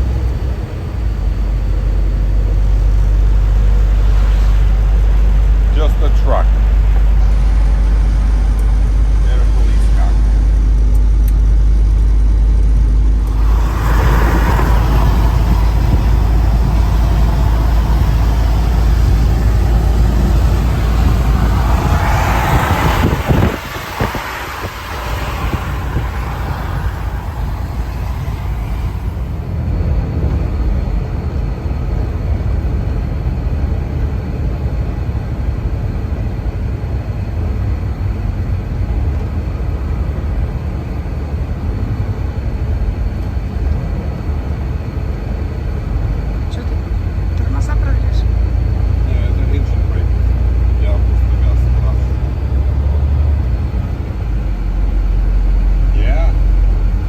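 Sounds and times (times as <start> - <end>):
vehicle engine and road rumble: 0.0 - 57.0
tyre hiss: 13.2 - 29.3.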